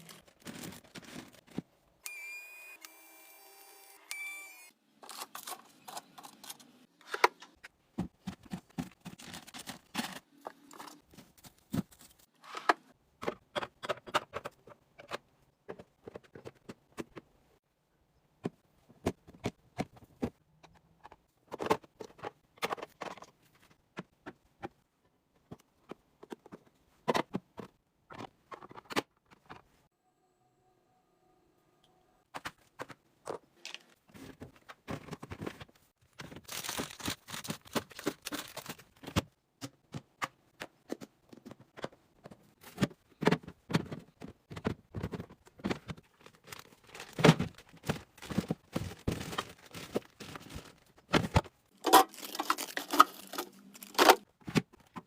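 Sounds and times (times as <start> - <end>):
containers clicking and knocking: 41.0 - 54.2.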